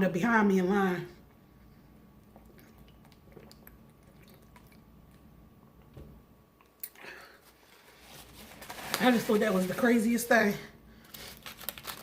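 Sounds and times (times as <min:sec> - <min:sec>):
person chewing: 0:02.2 - 0:05.3.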